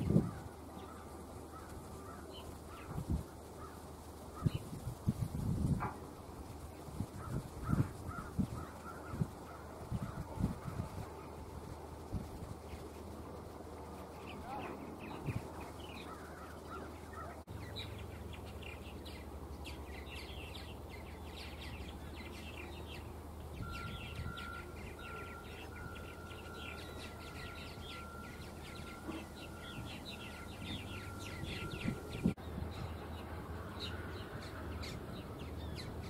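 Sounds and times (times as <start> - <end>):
small birds chirping: 0.0 - 36.0
thin steady high tone: 23.6 - 32.4.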